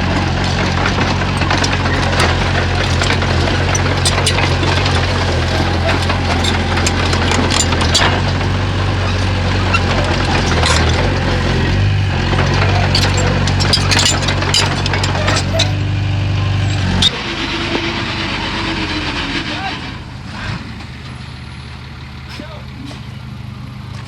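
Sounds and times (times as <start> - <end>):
tracks clanking on rocks: 0.0 - 21.4, 22.2 - 24.0
bulldozer diesel engine running: 0.0 - 24.0.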